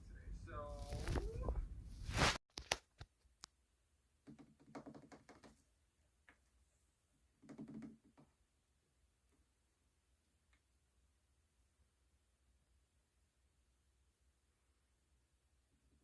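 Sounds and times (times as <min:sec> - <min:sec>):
muffled rustling: 0:00.7 - 0:02.4.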